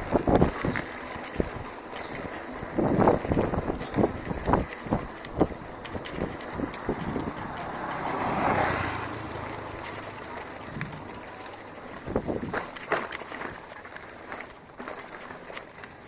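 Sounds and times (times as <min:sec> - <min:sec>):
bicycle clattering on dirt trail: 0:00.0 - 0:16.0.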